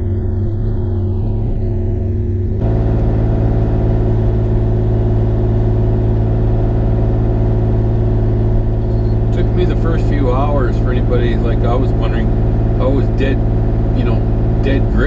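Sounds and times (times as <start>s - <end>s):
mini excavator engine running: 0.0s - 15.0s.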